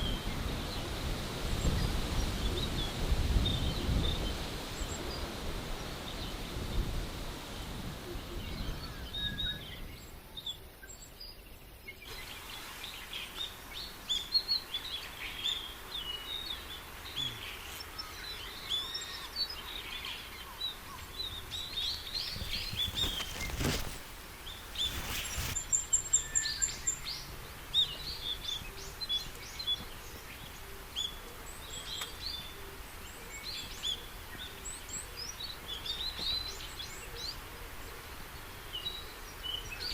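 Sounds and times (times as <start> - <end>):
forest birds chirping: 8.4 - 37.3
brief noise bursts: 22.2 - 25.6.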